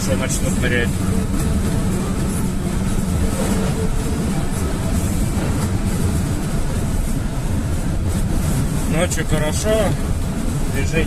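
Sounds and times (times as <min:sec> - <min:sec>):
road rumble: 0:00.0 - 0:11.0
van engine drone: 0:00.0 - 0:11.0.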